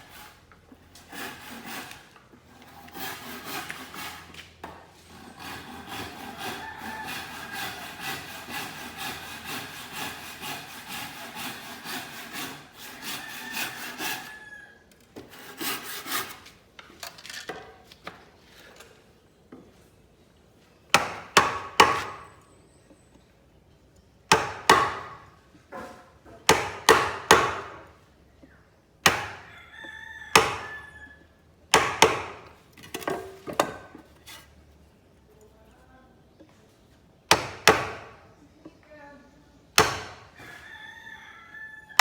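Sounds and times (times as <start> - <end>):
hand saw cutting wood: 0.0 - 14.4, 15.2 - 16.6, 21.0 - 22.3, 24.3 - 27.8, 31.7 - 34.6.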